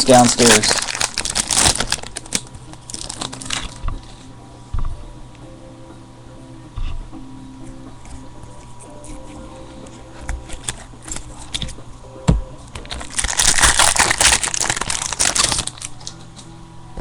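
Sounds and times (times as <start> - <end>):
wrappers crinkling: 0.0 - 3.8, 12.8 - 16.2.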